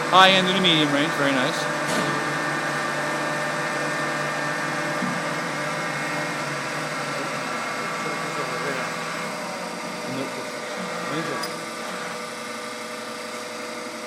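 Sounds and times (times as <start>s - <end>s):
lathe spindle whine: 0.0s - 14.0s.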